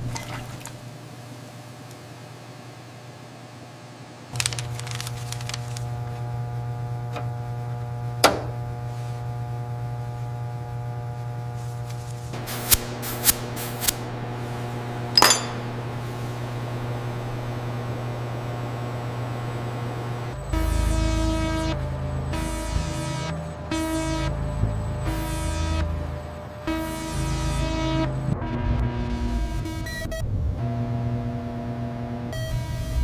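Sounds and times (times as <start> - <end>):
machine hum: 4.4 - 32.9
metallic clinks and taps: 15.2 - 15.6.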